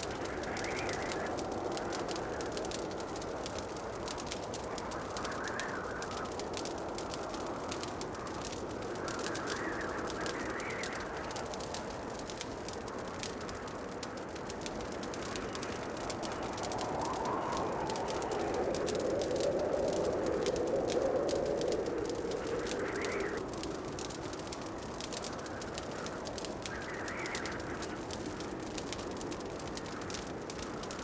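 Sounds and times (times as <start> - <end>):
fire crackling in fireplace: 0.0 - 31.0
fire rushing hiss: 0.0 - 31.0.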